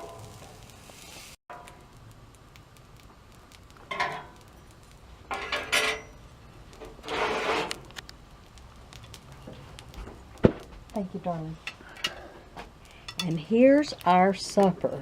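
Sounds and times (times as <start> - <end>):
dishes and utensils clattering: 5.3 - 6.2.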